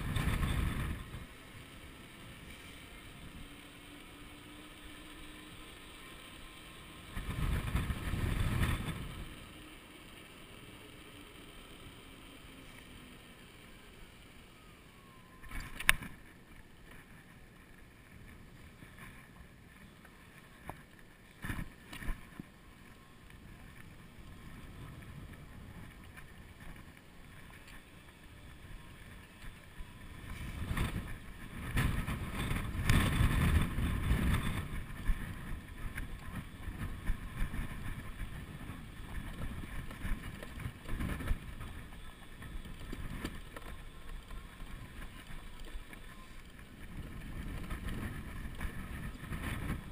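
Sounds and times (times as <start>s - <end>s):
wind buffeting microphone: 0.0s - 1.6s, 7.0s - 9.6s, 23.4s - 49.9s.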